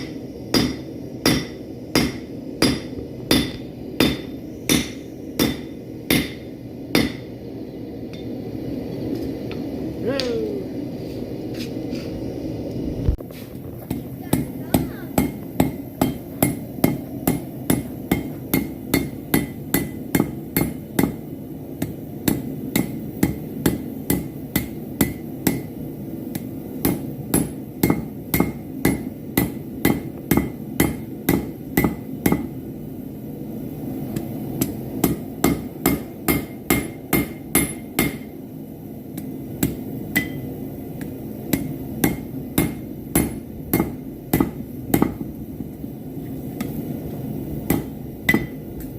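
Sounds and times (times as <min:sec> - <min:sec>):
low steady rush: 0:00.0 - 0:48.9
hammer ringing on steel anvil: 0:39.6 - 0:40.5, 0:47.7 - 0:48.6.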